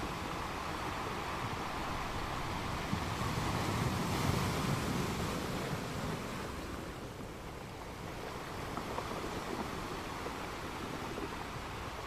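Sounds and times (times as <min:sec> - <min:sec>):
surf washing on a beach: 0:00.0 - 0:12.0.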